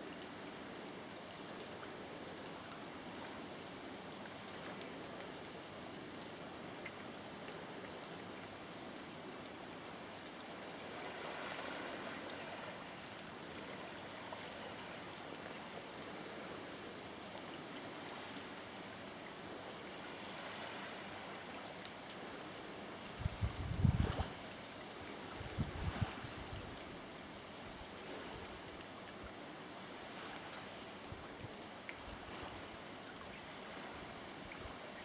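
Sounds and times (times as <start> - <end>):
faint ticks: 0.1 - 10.8, 20.7 - 23.8, 28.6 - 29.6, 31.4 - 32.2.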